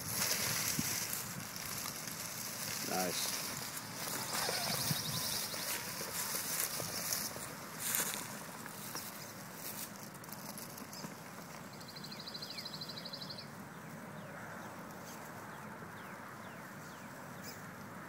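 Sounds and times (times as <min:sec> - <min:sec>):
birds chirping: 0:02.6 - 0:09.5, 0:10.8 - 0:17.7
bird trill: 0:04.0 - 0:06.0.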